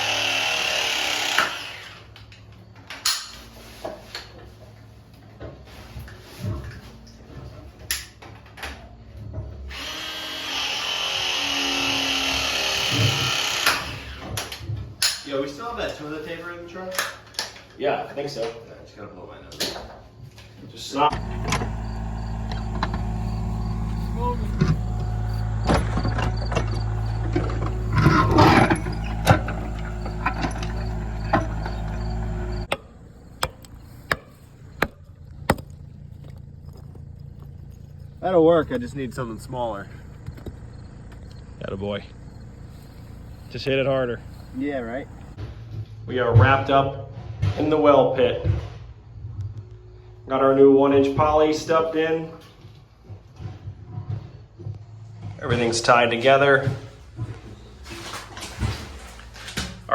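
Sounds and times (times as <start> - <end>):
power drill running: 0.0 - 2.2, 9.7 - 14.6, 21.0 - 33.8
steady low hum: 20.3 - 45.9
sharp knocks: 24.6 - 35.7.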